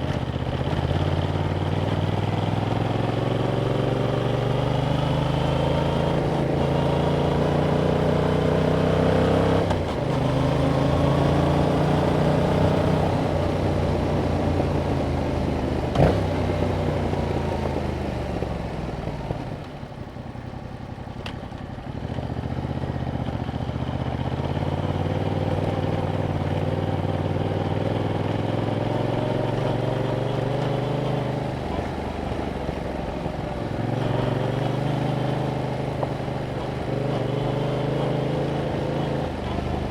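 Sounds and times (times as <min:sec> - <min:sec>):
motorcycle engine revving: 0:00.0 - 0:19.5, 0:21.9 - 0:39.9.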